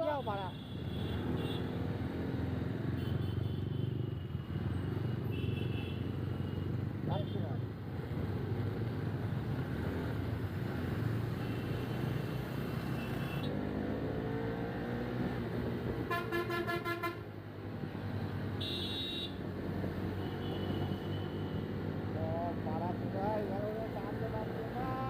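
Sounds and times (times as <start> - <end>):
engine and road noise: 0.0 - 25.0
vehicle horns honking: 16.1 - 17.3, 18.6 - 19.4, 20.2 - 21.6.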